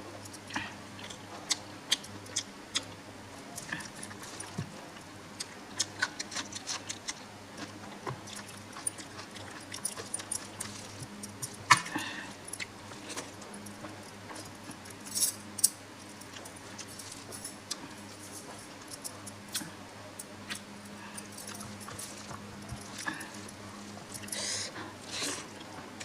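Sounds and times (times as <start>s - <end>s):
chewing and wet mouth clicks: 0.3s - 3.0s, 5.4s - 11.6s, 16.2s - 18.1s.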